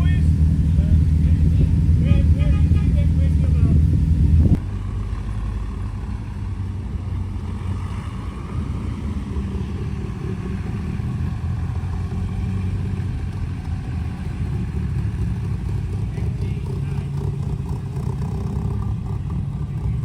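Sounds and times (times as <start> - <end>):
car engine idling: 0.0 - 4.6, 10.6 - 20.0.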